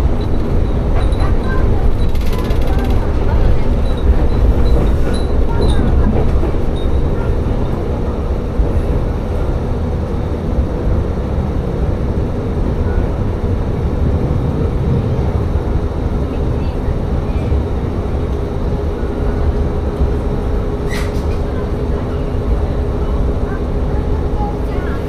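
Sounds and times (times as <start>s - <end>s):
train engine and wheels rumbling: 0.0s - 25.0s.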